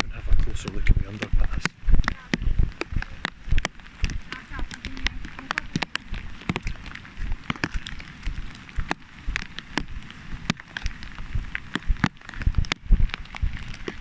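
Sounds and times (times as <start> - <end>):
low rumble: 0.0 - 14.0
raindrops tapping on plastic bag: 0.0 - 14.0.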